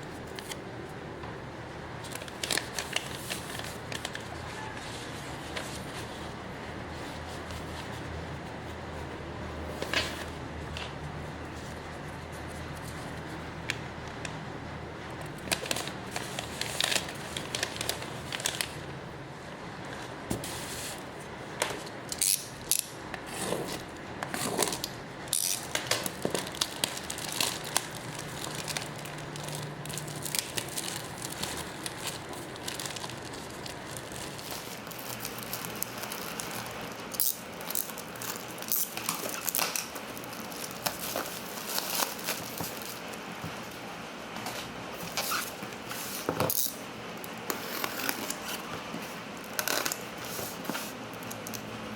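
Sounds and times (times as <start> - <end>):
plastic packaging crinkling: 2.0 - 5.9, 15.3 - 18.9, 23.6 - 51.7.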